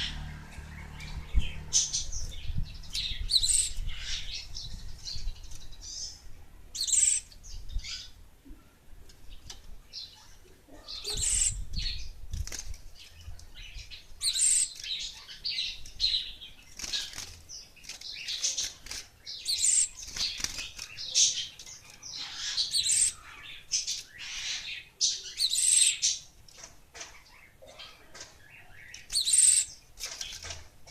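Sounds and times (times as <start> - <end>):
bird chirping: 0.0 - 12.2, 13.0 - 30.9
wings fluttering: 16.7 - 19.2, 19.9 - 22.0.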